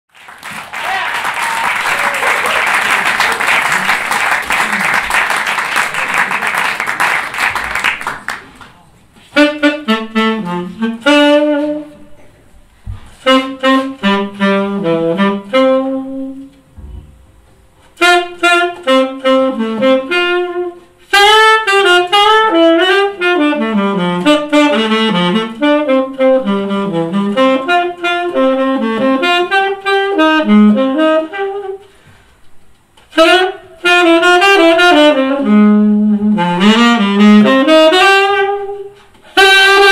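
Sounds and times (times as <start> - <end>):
applause: 0.1 - 8.8
jazz saxophone solo: 9.2 - 39.9.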